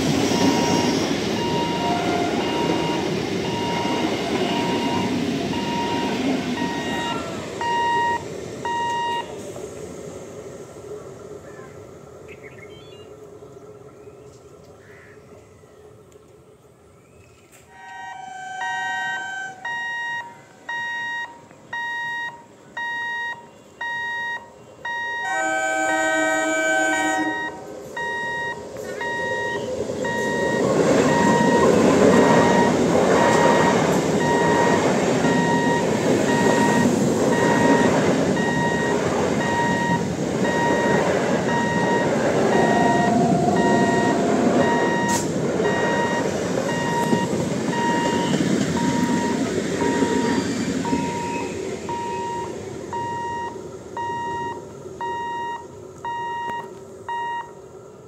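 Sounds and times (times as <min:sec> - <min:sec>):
train wheels rumbling on rails: 0:00.0 - 0:58.0
train horn chord: 0:01.4 - 0:02.8, 0:17.7 - 0:19.7, 0:25.2 - 0:27.7.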